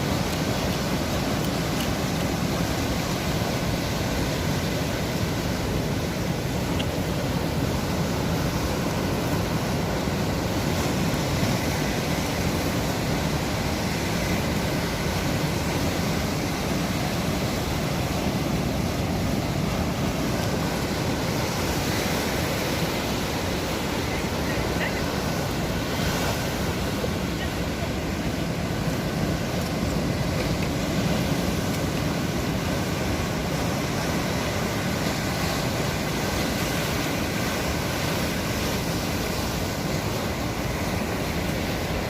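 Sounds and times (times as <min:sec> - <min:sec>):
sea waves washing on shore: 0:00.0 - 0:42.0.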